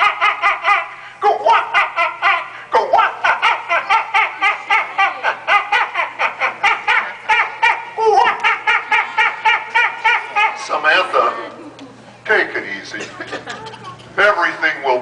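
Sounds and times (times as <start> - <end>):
puppet voice sobbing: 0.0 - 10.7.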